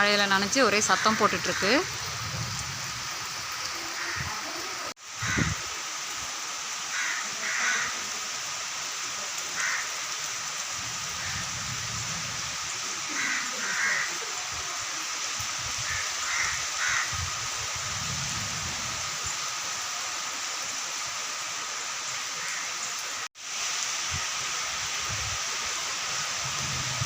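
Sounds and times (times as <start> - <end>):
heavy rain hissing: 0.0 - 27.0
wind gusts rumbling: 0.8 - 5.7, 10.7 - 13.1, 15.4 - 19.3, 26.2 - 27.0.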